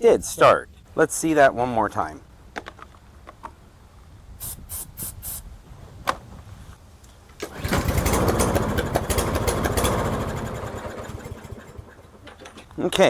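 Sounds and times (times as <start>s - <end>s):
short hisses of spray: 4.4s - 5.5s
lawn mower engine running: 7.4s - 12.7s
mower engine pull-started: 7.4s - 12.7s.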